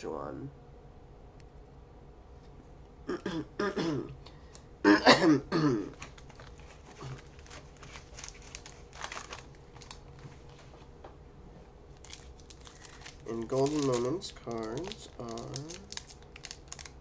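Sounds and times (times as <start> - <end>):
man clearing throat and coughing: 3.1 - 4.2, 4.8 - 5.9
card handling clicks and crinkles: 5.9 - 10.7, 12.0 - 17.0.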